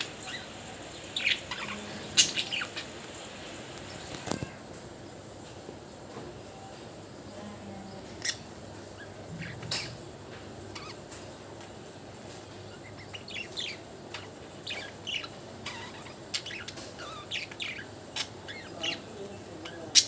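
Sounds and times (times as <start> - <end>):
budgerigars chirping: 0.0 - 4.2, 10.7 - 11.1, 12.7 - 20.0.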